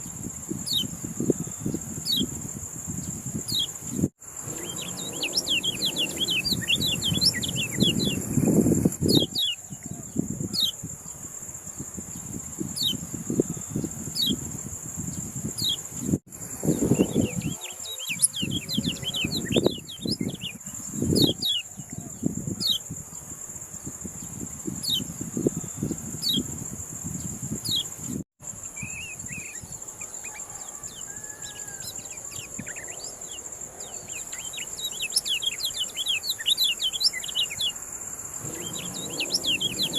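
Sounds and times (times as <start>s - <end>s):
high insect whine: 0.0s - 39.9s
songbird chirping: 3.0s - 10.8s, 16.6s - 22.9s, 28.7s - 39.9s
low rumbling noise: 38.4s - 39.9s.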